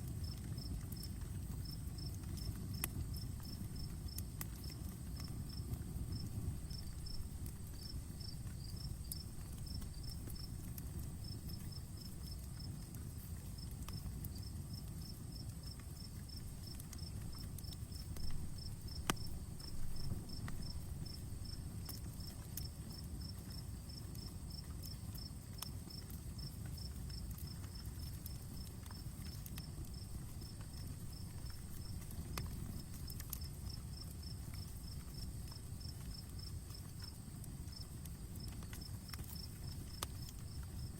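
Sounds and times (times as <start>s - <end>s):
campfire rumble: 0.0s - 40.9s
cricket chirping: 0.0s - 40.9s
fire crackles and pops: 0.0s - 40.9s.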